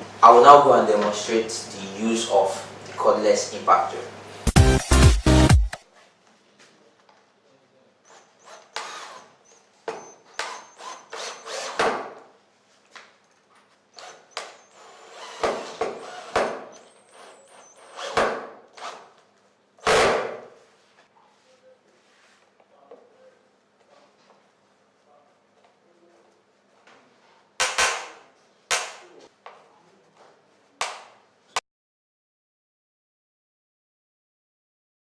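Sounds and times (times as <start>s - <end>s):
impact drill driving screws: 8.1s - 12.1s, 14.0s - 19.2s.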